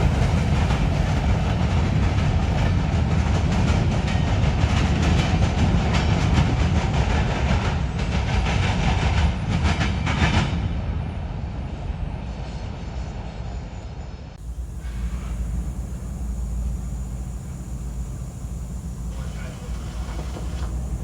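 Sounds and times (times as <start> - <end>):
steady low rumble: 0.0 - 3.1, 14.4 - 21.0
train wheels clacking on rails: 0.0 - 6.2, 14.4 - 21.0.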